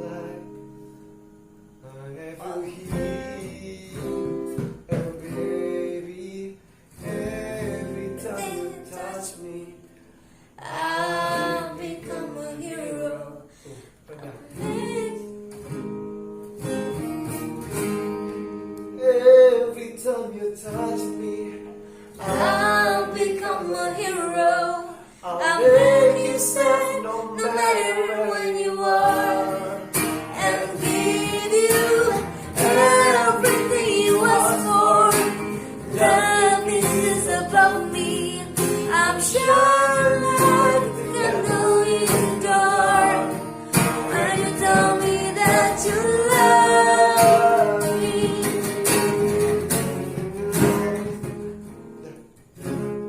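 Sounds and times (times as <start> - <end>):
acoustic guitar strumming: 0.0 - 13.4, 14.3 - 53.0
woman singing a pop ballad: 10.6 - 13.4, 14.5 - 15.4, 22.2 - 29.8, 30.4 - 48.8.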